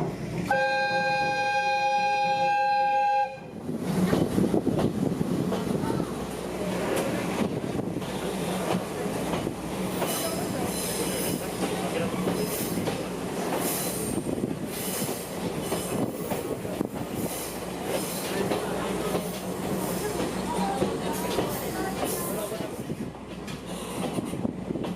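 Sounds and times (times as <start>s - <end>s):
train rattling drone: 0.0s - 24.9s
wheels squealing on rails: 9.9s - 16.5s.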